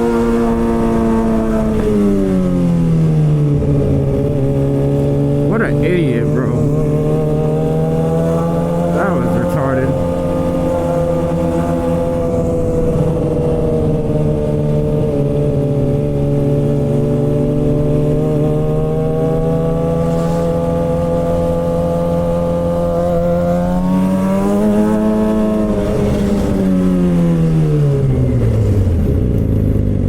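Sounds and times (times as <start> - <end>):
motorcycle engine revving: 6.6 - 9.0, 9.9 - 28.9.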